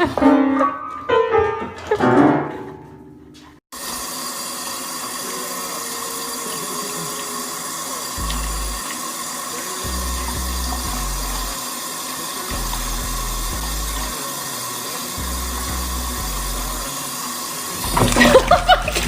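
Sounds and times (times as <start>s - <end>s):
piano music: 0.0s - 3.6s
water running from a tap: 3.8s - 19.0s.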